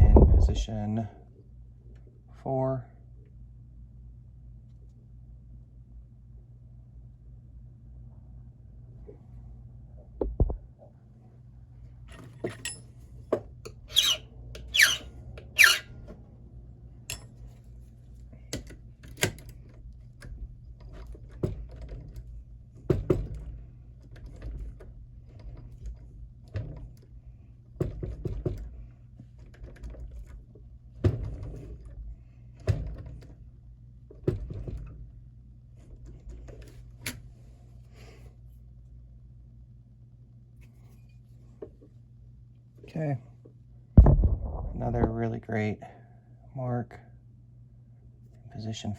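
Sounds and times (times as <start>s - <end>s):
high squeaky key scrapes: 13.9s - 16.0s.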